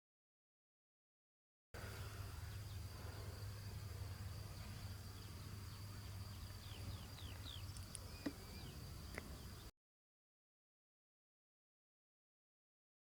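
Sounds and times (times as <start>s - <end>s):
bird chirps: 1.8s - 9.7s
insect drone: 1.8s - 9.7s.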